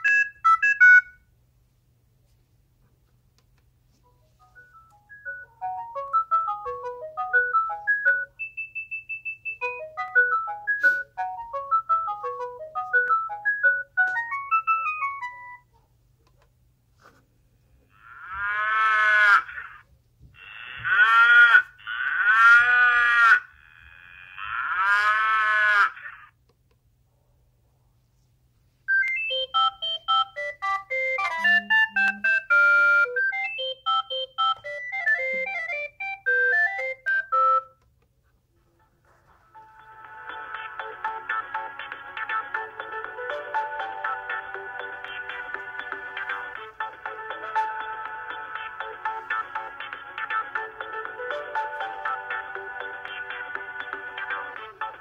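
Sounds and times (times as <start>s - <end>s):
phone ringtone melody: 0.0s - 1.2s, 4.3s - 15.7s, 28.9s - 37.8s, 39.5s - 55.0s
warbling ringtone tones: 0.0s - 1.2s, 4.4s - 15.7s, 28.9s - 37.8s, 39.6s - 55.0s.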